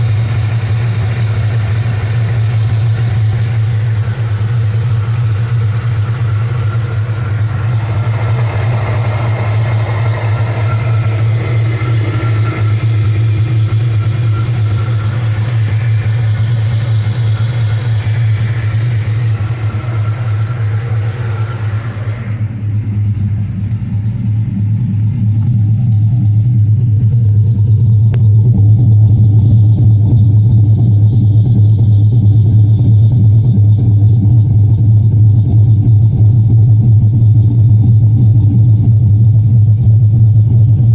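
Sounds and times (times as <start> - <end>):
car engine idling choppily: 0.0 - 40.9.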